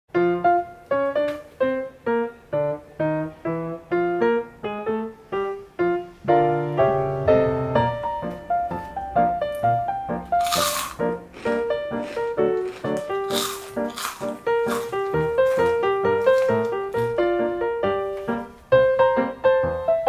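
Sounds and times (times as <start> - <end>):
piano music: 0.1 - 20.0.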